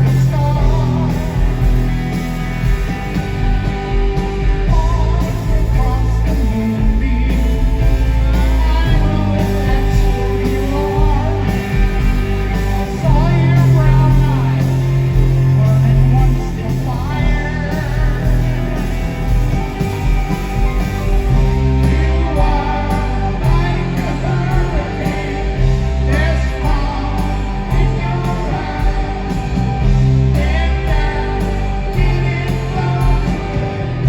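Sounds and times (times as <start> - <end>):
electric guitar: 0.0 - 34.0
heavy bass: 0.0 - 34.0
live rock band playing: 0.0 - 34.0
person singing: 4.6 - 18.9, 21.3 - 34.0.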